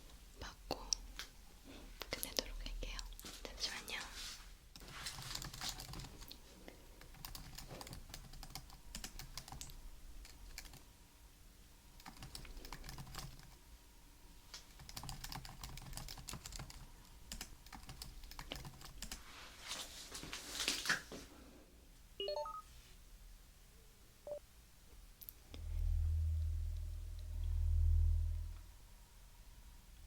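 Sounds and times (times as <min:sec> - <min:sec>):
computer keyboard typing: 0:04.8 - 0:06.4, 0:07.0 - 0:10.8, 0:12.0 - 0:13.6, 0:14.6 - 0:19.2.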